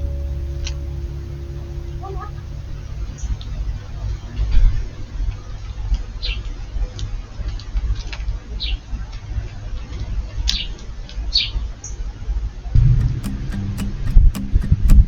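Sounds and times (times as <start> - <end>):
music: 0.0 - 4.6, 12.8 - 15.0
low rumble: 0.0 - 5.2.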